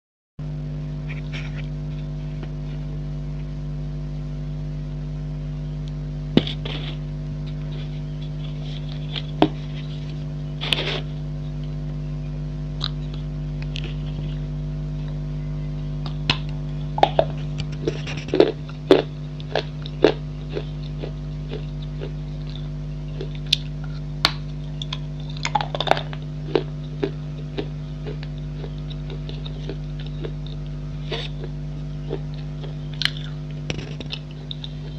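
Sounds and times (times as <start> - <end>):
steady low hum: 0.4 - 34.9
crisp crunches of chewing: 6.4 - 11.2, 12.8 - 14.5, 16.0 - 34.9.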